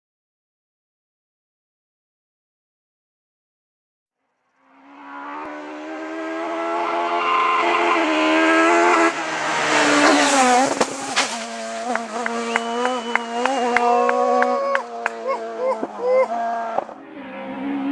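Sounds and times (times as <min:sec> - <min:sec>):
rally car engine at high revs: 0:04.7 - 0:17.9
engine cracks and pops: 0:10.0 - 0:15.2.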